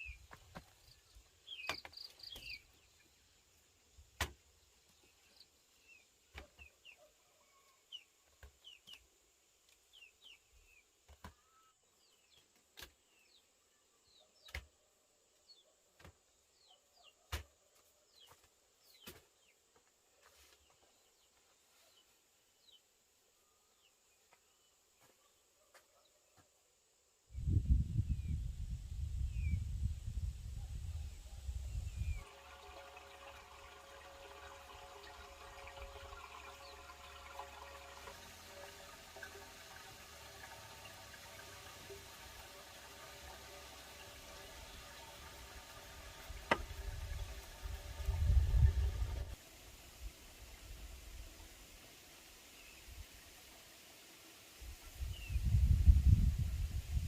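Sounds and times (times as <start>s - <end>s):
faint small bird chirps: 5.0s - 9.1s, 9.9s - 12.5s.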